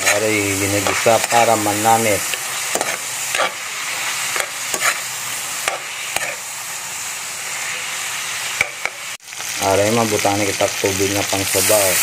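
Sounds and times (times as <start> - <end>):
metal spatula scraping a pan: 0.0 - 6.5
chicken sizzling in hot oil: 0.0 - 12.0.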